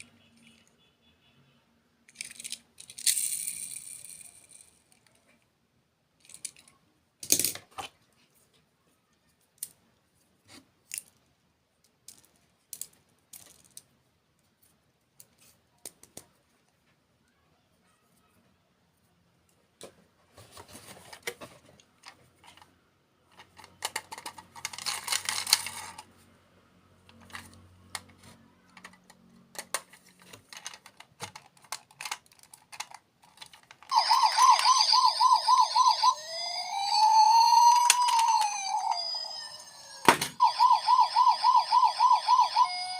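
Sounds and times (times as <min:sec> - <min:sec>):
small handling clicks and rustle: 0:06.2 - 0:17.0, 0:19.4 - 0:26.1, 0:27.0 - 0:34.0
electronic siren wailing: 0:33.9 - 0:42.9.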